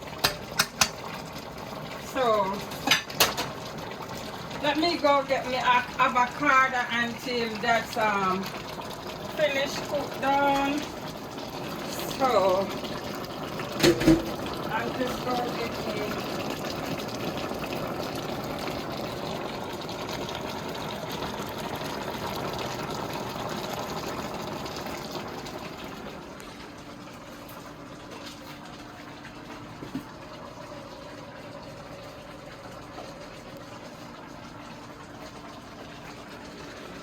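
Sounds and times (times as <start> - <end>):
pot bubbling on stovetop: 0.0 - 37.0.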